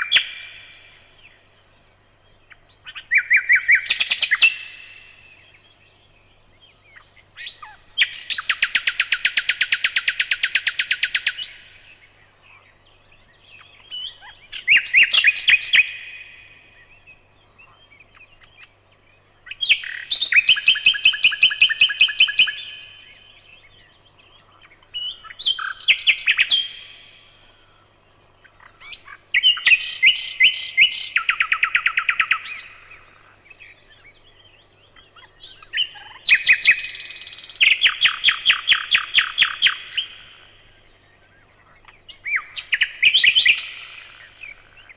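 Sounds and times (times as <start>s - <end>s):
nightingale singing: 0.0s - 44.9s.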